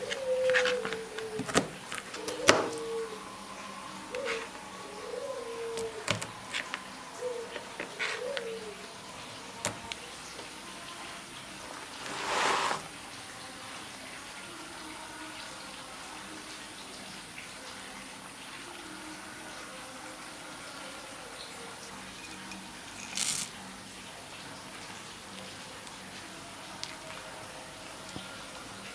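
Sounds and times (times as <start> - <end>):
rushing hiss: 11.8 - 13.1
short higher hiss: 12.0 - 12.9.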